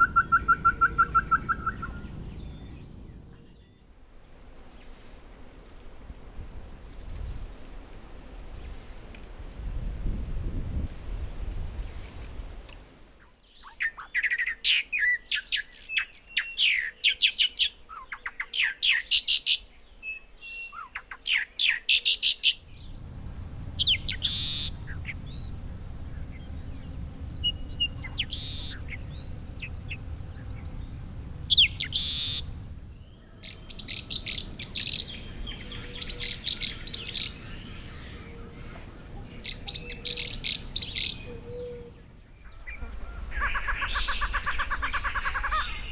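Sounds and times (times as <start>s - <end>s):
birds chirping: 0.0s - 3.9s, 4.5s - 5.3s, 22.2s - 45.9s.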